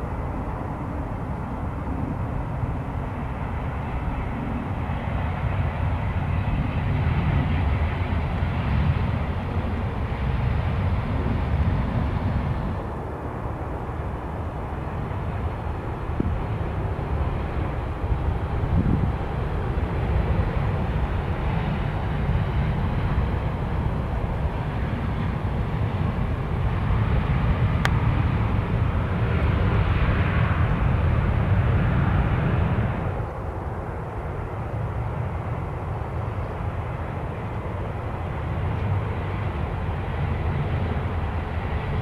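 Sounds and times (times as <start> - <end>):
jet airliner engines: 0.0 - 42.0
steady low rumble: 0.0 - 42.0.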